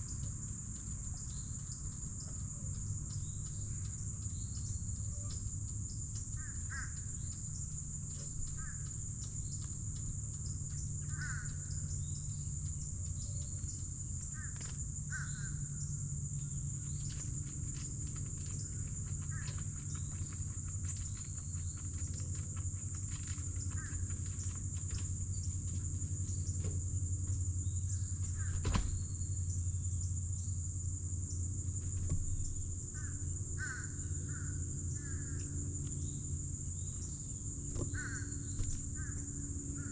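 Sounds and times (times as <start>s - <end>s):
high-pitched insect chorus: 0.0s - 39.9s
low steady rumble: 0.0s - 39.9s
sharp knock: 28.6s - 29.0s.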